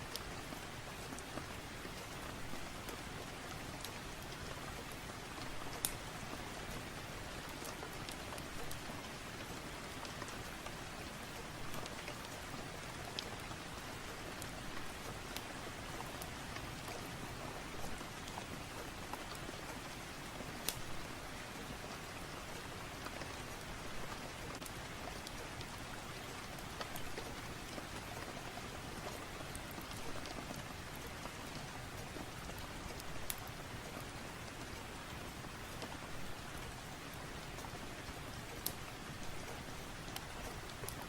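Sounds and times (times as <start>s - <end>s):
rain hiss: 0.0s - 41.0s
wood fire crackling and popping: 13.0s - 13.6s, 20.6s - 21.0s, 23.0s - 28.3s, 29.0s - 41.0s.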